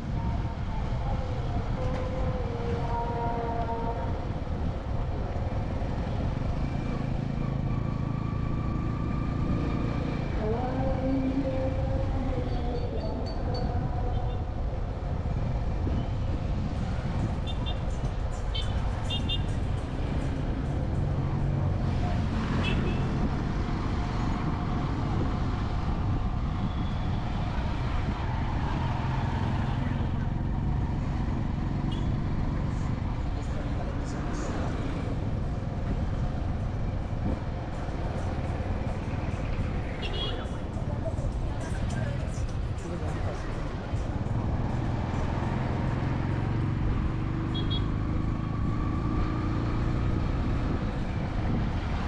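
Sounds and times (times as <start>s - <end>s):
steady traffic rumble: 0.0s - 52.0s
vehicles passing: 0.0s - 52.0s.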